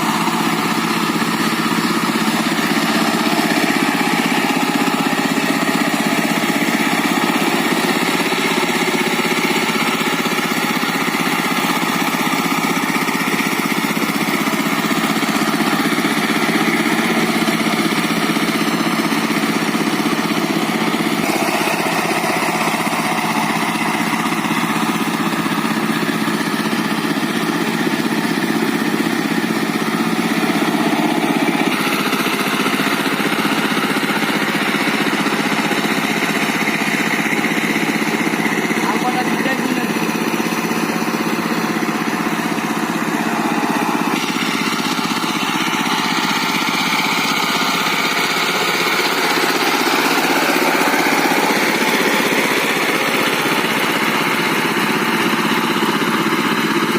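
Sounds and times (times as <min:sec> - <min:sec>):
diesel tractor engine running: 0:00.0 - 0:56.9.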